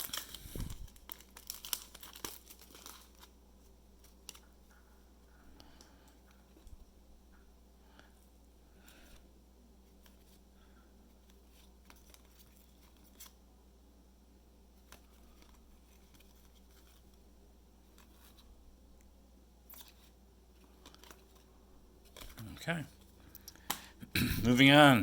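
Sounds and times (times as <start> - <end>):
cards clicking and sliding: 19.7 - 22.5.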